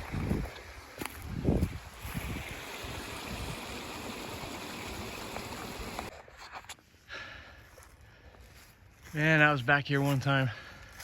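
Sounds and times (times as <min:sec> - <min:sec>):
stream water rushing: 0:00.0 - 0:06.1.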